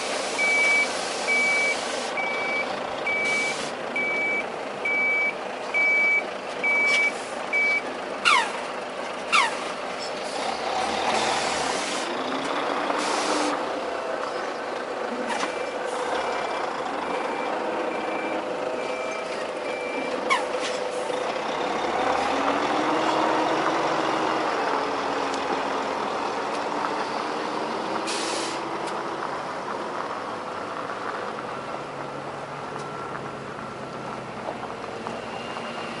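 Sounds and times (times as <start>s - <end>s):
air brakes hissing: 0.0s - 2.2s, 3.2s - 3.8s, 13.0s - 13.6s, 28.0s - 28.7s
truck diesel engine: 0.0s - 36.0s
reversing alarm beeping: 0.4s - 8.5s, 17.0s - 20.2s.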